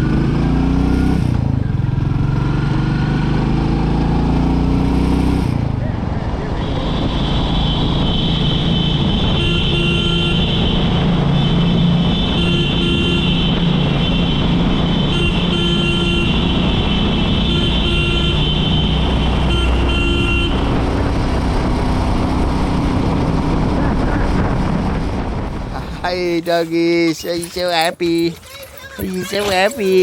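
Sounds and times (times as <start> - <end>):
motorcycle engine running: 0.0 - 4.7.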